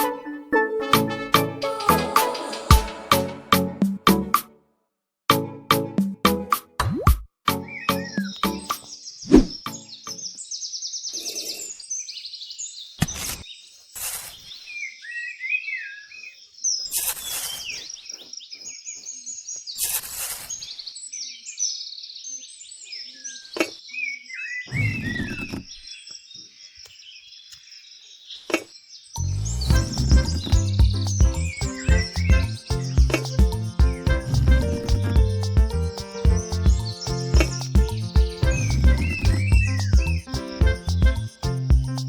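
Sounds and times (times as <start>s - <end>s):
birds chirping: 7.5s - 13.5s, 22.2s - 42.0s.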